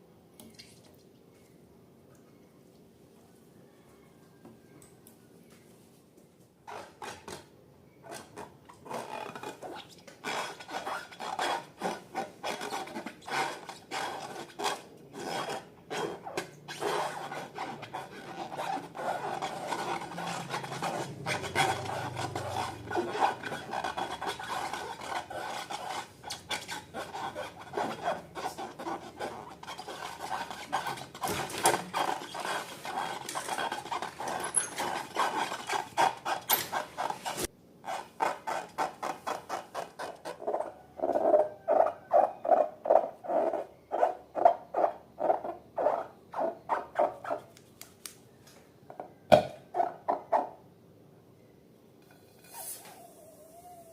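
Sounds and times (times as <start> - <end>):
rasping rub: 8.1 - 43.6.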